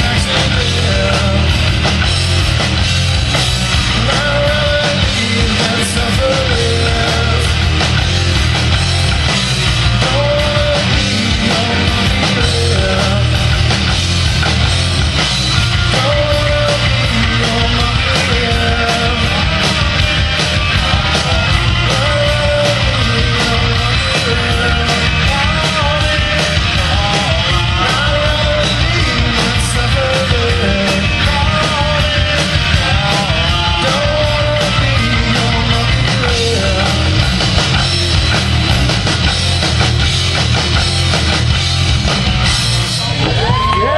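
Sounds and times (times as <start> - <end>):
rock band playing: 0.0 - 43.9.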